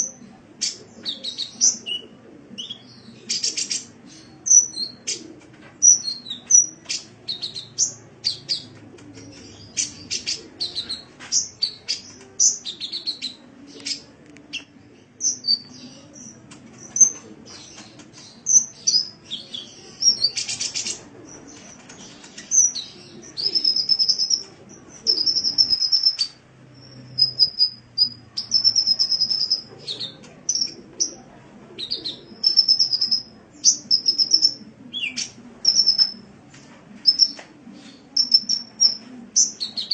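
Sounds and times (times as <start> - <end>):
bird singing high-pitched chirps: 22.4 - 24.5, 25.1 - 30.8, 32.0 - 36.2, 38.2 - 39.9.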